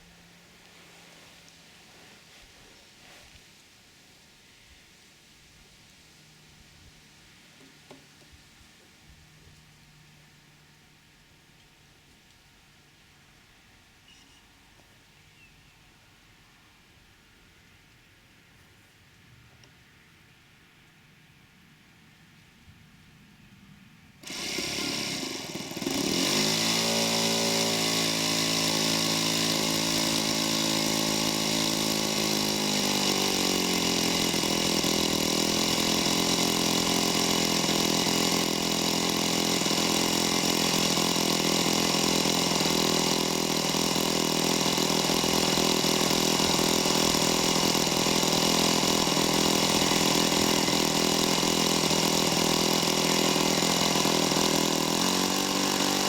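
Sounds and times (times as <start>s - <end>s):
model plane engine running: 24.2s - 56.0s.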